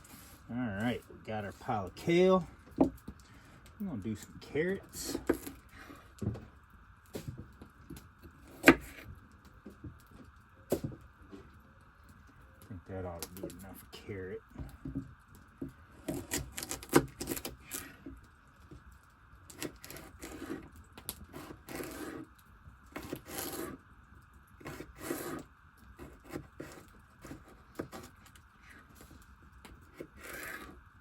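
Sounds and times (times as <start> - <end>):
knife cutting on wooden board: 8.6 - 9.0, 21.3 - 22.2, 23.0 - 23.8, 30.0 - 30.8.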